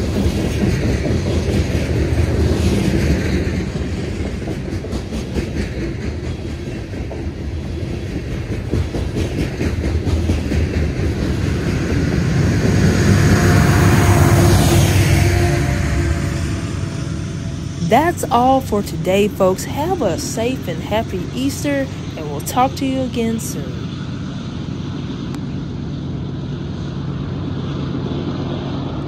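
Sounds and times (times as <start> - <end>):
wheels clacking over rail joints: 0.0 - 12.4
diesel locomotive: 0.0 - 29.0
freight train wheels rumbling: 0.0 - 29.0.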